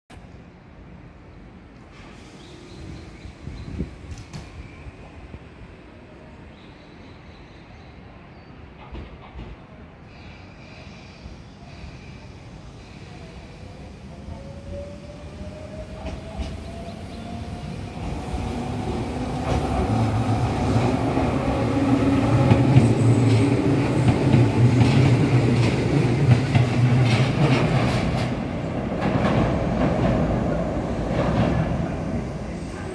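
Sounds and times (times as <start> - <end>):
train rumbling past: 8.0 - 32.9.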